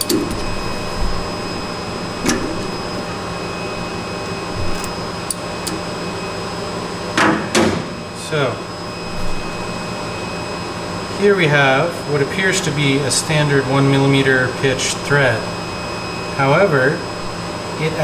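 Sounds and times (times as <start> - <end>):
lathe pumps and fans humming: 0.0 - 18.0.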